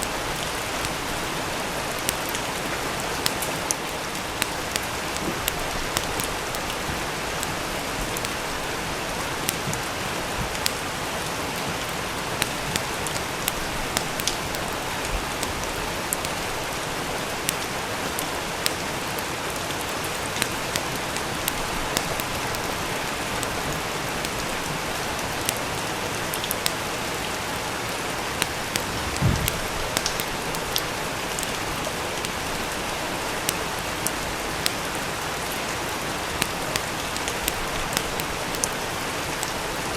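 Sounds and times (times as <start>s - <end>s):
sharp crackles and pops: 0.0s - 39.9s
steady rain: 0.0s - 39.9s
low thump: 29.0s - 29.9s.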